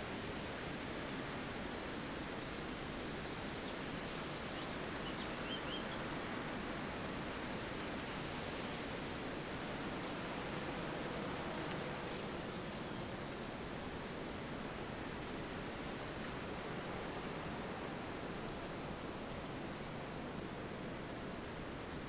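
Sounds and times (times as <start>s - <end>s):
wind through trees: 0.0s - 22.0s
faint bird chirps: 3.7s - 6.1s.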